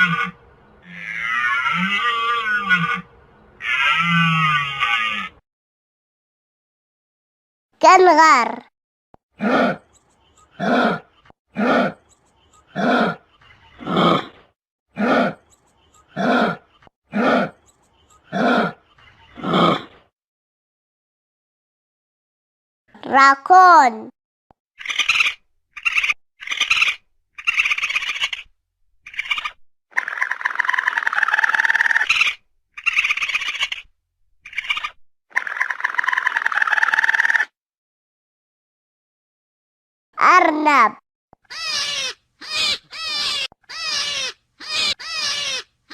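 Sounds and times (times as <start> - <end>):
kangaroo calling: 0.0 - 5.4, 24.8 - 37.5, 41.4 - 45.9.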